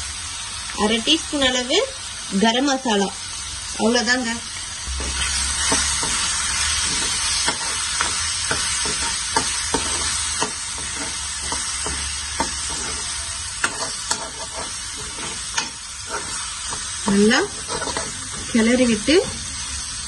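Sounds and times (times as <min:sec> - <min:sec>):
livers sizzling in oil: 0:00.0 - 0:20.0
spoon scraping a pan: 0:05.0 - 0:19.3.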